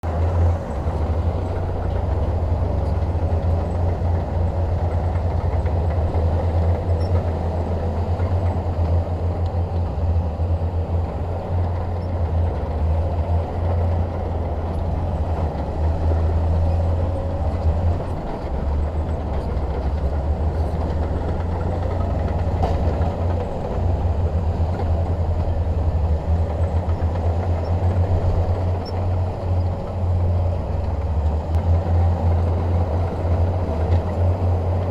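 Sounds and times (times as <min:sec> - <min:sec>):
bulldozer diesel engine rumbling: 0:00.0 - 0:34.9.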